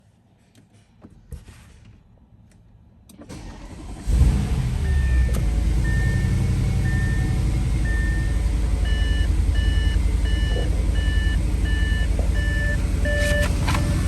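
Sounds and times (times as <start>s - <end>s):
car engine starting and idling: 3.1s - 14.0s.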